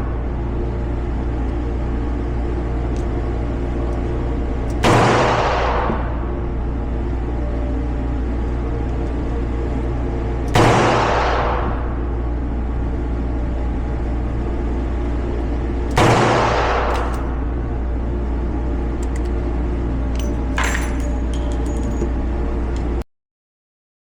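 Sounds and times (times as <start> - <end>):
steady low hum: 0.0 - 23.0
revolver gunshot ringing: 4.8 - 6.1, 10.5 - 11.8, 15.9 - 17.1.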